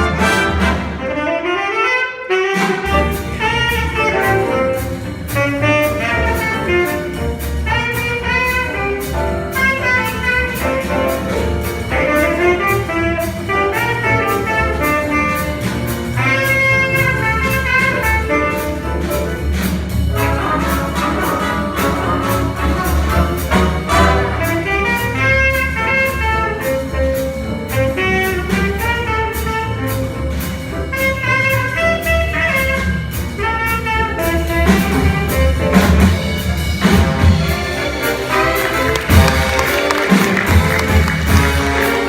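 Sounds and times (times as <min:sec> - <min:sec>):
horn solo: 0:00.0 - 0:11.2, 0:20.2 - 0:42.0
jazz big band playing: 0:00.0 - 0:42.0
walking bass: 0:02.7 - 0:42.0.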